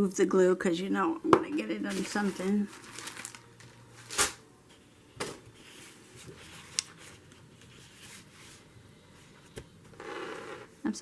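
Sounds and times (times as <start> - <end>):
paper rustling: 1.9 - 4.4.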